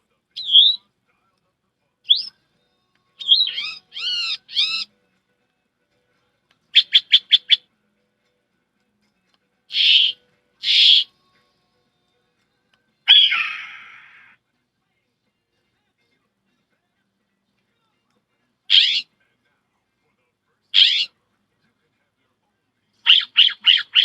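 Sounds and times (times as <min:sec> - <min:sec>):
woman imitating bird calls: 0:09.7 - 0:11.1, 0:13.1 - 0:14.4.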